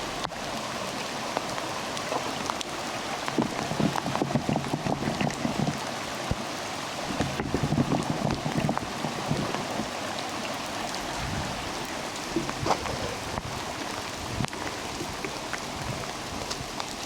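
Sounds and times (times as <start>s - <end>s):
steady rain falling: 0.0s - 17.0s
low thumps: 3.3s - 5.9s, 7.1s - 10.0s.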